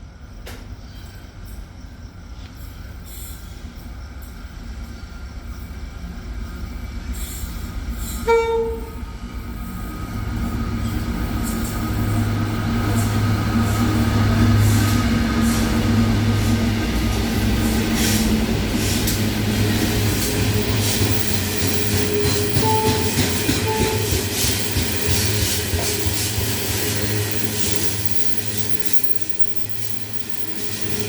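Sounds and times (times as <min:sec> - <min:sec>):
diesel locomotive engine rumble: 0:00.0 - 0:31.0
train horn toot: 0:08.1 - 0:09.1, 0:21.8 - 0:24.6.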